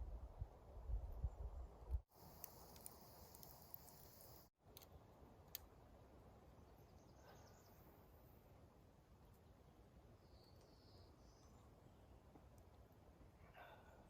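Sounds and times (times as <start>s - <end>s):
high insect-like hiss: 2.1s - 4.5s.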